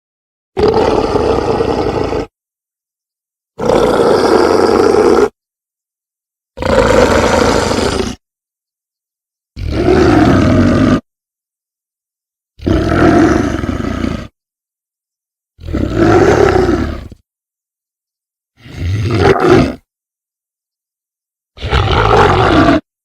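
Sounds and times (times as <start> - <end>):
big cat roaring: 0.6 - 2.3, 3.6 - 5.3, 6.6 - 8.2, 9.6 - 11.0, 12.6 - 14.3, 15.6 - 17.2, 18.6 - 19.8, 21.6 - 22.8.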